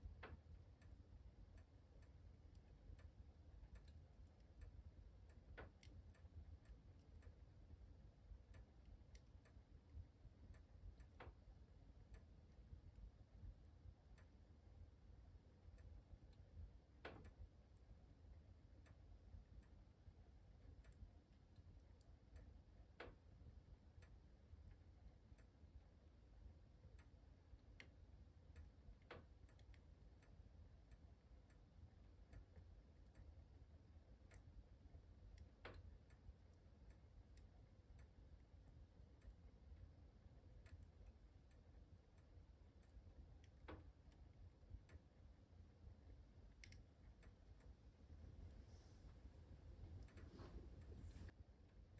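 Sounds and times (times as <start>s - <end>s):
wood fire crackling: 48.4s - 51.4s.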